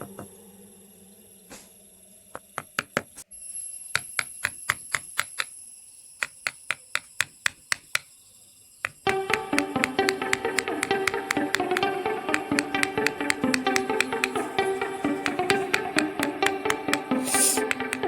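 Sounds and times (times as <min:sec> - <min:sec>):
music: 0:00.0 - 0:18.0
mallet striking carving chisel: 0:04.0 - 0:05.5, 0:06.2 - 0:08.1, 0:15.2 - 0:18.0.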